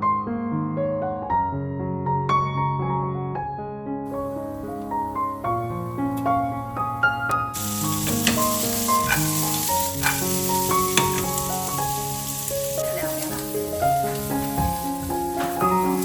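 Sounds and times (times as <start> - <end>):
soft piano music: 0.0 - 16.0
food sizzling in a frying pan: 7.4 - 16.0.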